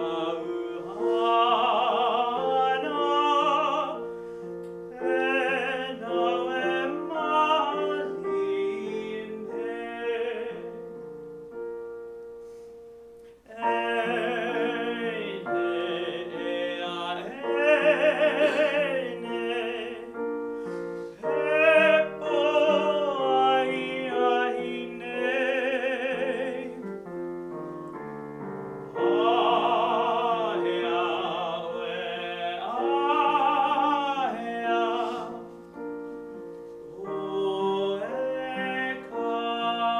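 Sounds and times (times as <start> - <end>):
man singing with vibrato: 0.0 - 11.0, 13.4 - 26.9, 28.9 - 35.7, 36.8 - 39.9
piano: 0.0 - 39.9.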